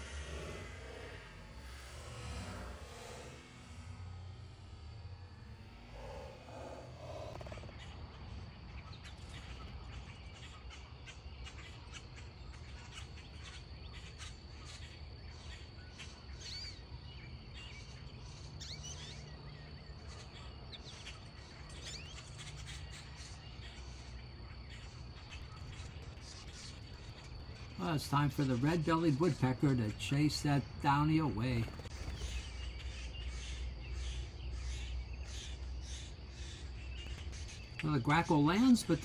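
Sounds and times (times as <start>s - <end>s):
low outdoor rumble: 0.0s - 13.3s
insect drone: 0.0s - 39.0s
birds chirping: 5.5s - 39.0s.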